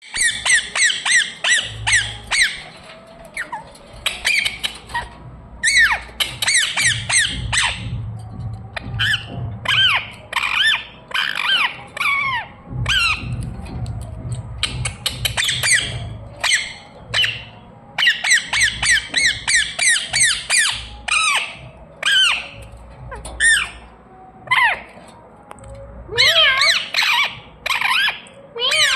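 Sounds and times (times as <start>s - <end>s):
parrot squawking: 0.0s - 7.9s, 8.8s - 13.4s, 14.7s - 23.9s, 26.1s - 28.9s.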